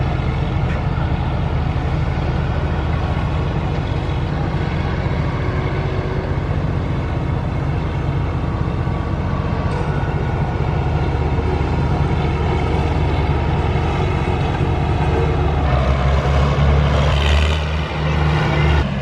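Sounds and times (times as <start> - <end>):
tractor engine droning: 0.0 - 19.0.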